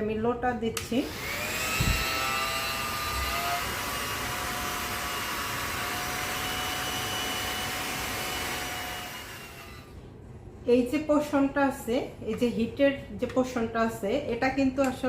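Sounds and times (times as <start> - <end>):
hot-air brush blowing air: 1.0 - 10.0.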